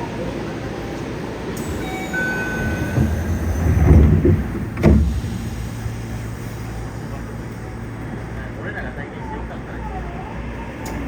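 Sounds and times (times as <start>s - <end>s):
train low rumbling: 0.0s - 11.0s
sharp thump: 3.0s - 6.0s.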